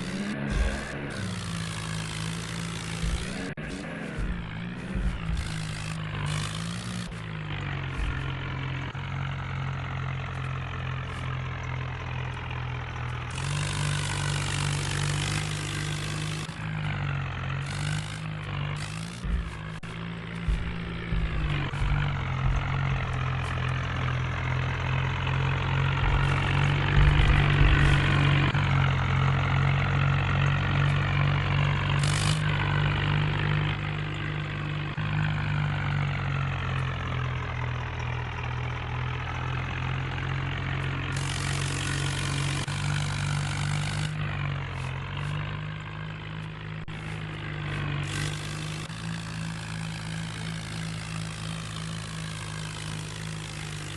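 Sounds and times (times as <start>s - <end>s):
tractor diesel engine running: 0.0s - 53.9s
hiss: 41.2s - 42.7s.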